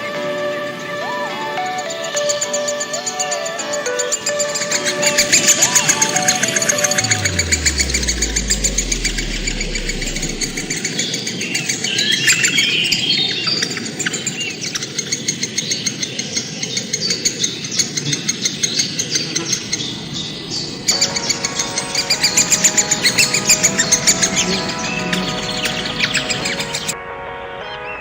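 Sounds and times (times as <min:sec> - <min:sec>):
flock of birds chirping: 0:00.0 - 0:27.0
low hum sliding down: 0:05.0 - 0:11.0, 0:19.4 - 0:27.0.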